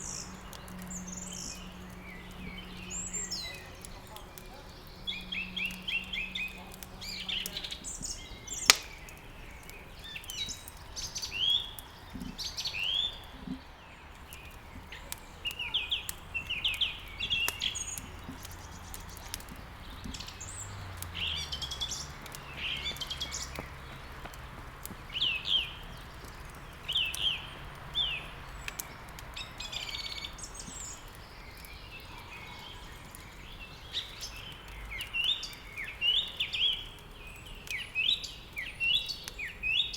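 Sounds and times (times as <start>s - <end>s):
songbirds chirping and twittering: 0.0s - 39.9s
wood fire crackling: 0.0s - 39.9s
sharp pop: 8.6s - 9.0s.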